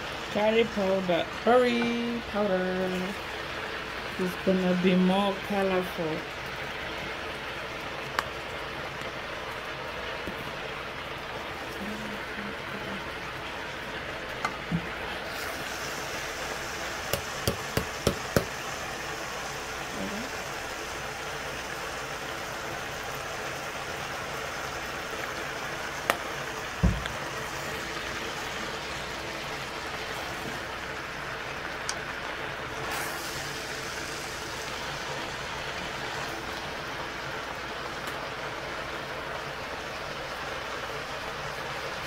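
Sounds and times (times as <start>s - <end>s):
spices sizzling in a pot: 0.0s - 42.0s
wooden spoon knocking on pot: 17.1s - 18.5s
dull thump: 26.8s - 27.1s.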